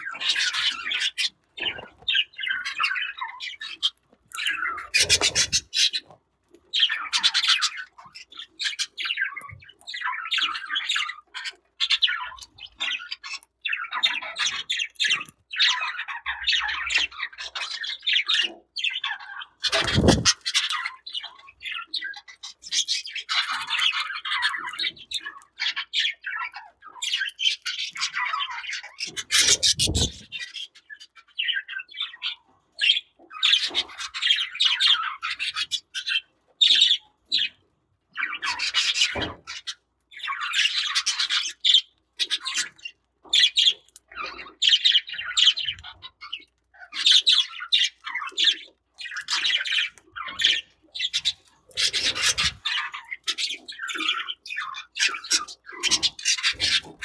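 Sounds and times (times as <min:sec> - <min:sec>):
budgerigars chirping: 0:00.1 - 0:06.1, 0:06.8 - 0:26.4, 0:27.0 - 0:30.7, 0:47.0 - 0:57.0.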